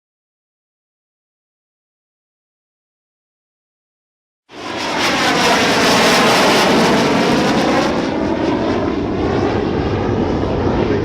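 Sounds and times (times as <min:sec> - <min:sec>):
jet engine roar: 0:04.5 - 0:11.0.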